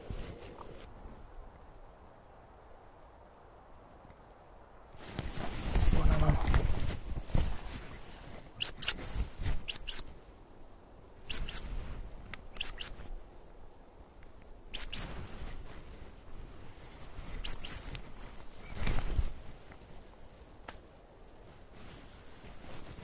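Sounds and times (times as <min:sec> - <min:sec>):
high songbird double notes: 0:08.6 - 0:09.0.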